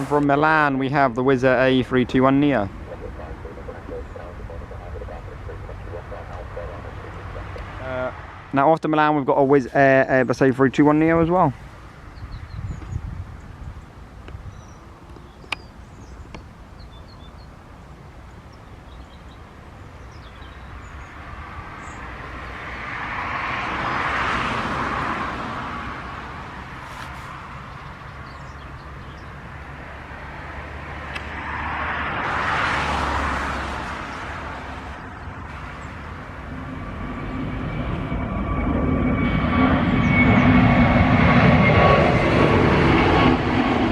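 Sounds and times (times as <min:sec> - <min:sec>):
jet airliner engines whining: 0:00.0 - 0:08.6, 0:09.5 - 0:43.9
vehicles passing: 0:00.0 - 0:43.9.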